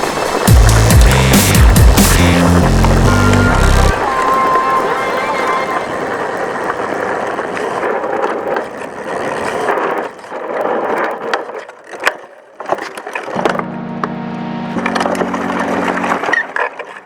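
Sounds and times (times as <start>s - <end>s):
bike tyres and rattle: 6.2s - 13.4s.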